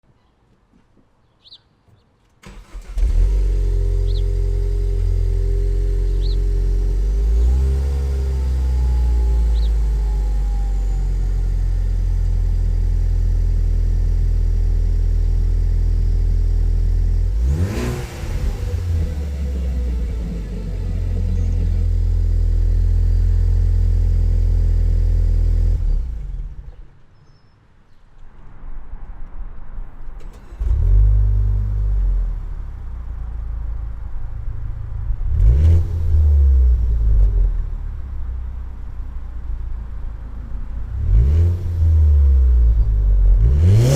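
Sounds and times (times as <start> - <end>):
car engine cranking: 2.4 - 10.4, 30.2 - 39.8
car engine idling: 2.4 - 26.7, 31.4 - 43.8.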